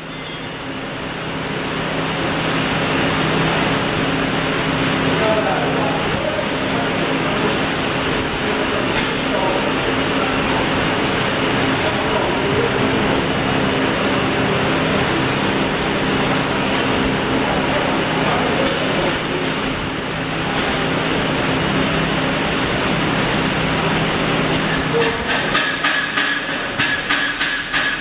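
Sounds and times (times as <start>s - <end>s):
welding arc crackling hiss: 0.0s - 28.0s
welding machines humming: 0.0s - 28.0s.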